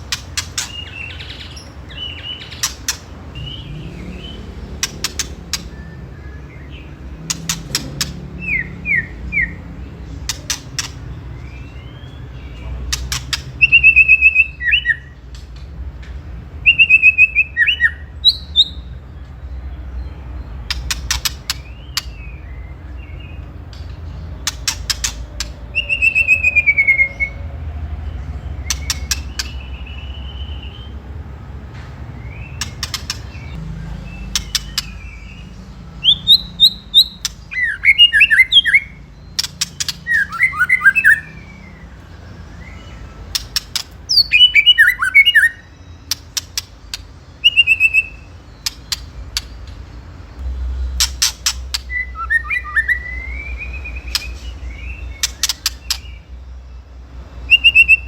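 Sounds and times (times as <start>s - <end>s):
bird harsh rattling calls: 0.0s - 5.8s, 20.6s - 22.2s, 23.8s - 27.3s, 32.4s - 41.4s, 42.8s - 50.0s, 50.9s - 53.0s, 54.1s - 56.2s
bird whistled falling phrases: 40.1s - 41.4s, 44.2s - 45.6s.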